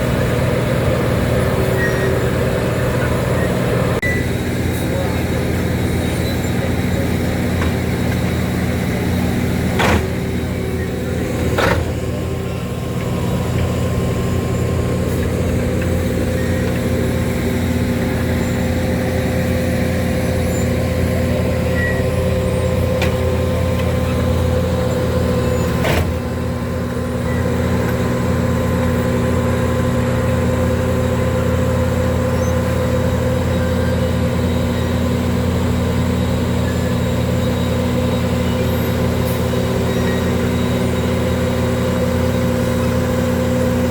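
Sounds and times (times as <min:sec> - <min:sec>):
engine whine: 0:00.0 - 0:43.9
heavy machinery engine running: 0:00.0 - 0:43.9.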